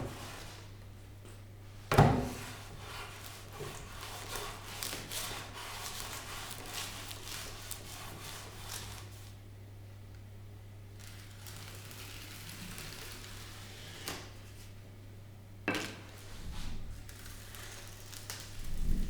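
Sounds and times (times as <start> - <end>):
scratchy rubbing and scraping: 2.3 - 9.2.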